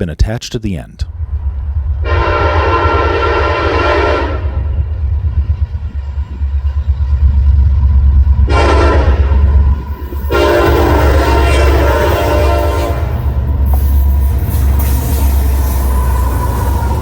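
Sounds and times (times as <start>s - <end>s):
diesel locomotive engine rumble: 1.0s - 17.0s
locomotive air horn blasts: 2.0s - 4.6s, 8.5s - 9.5s, 10.3s - 13.4s.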